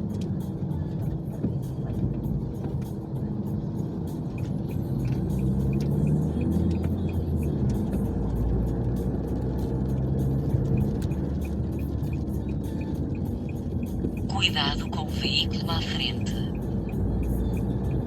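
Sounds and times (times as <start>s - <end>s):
rain tapping on car: 0.0s - 14.3s
car road and engine rumble: 0.0s - 18.0s.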